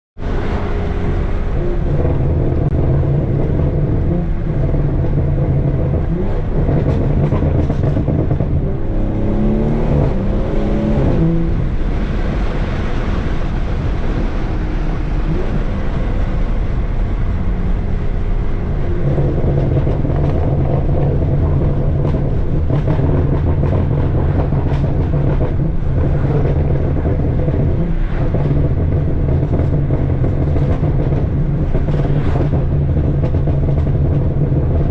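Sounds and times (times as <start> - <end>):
loud car exhaust drone: 0.2 - 34.9
rough rushing noise: 0.2 - 34.9.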